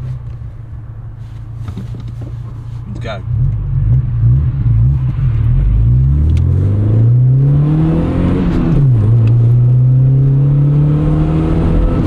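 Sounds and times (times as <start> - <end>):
car engine accelerating: 3.0 - 12.0.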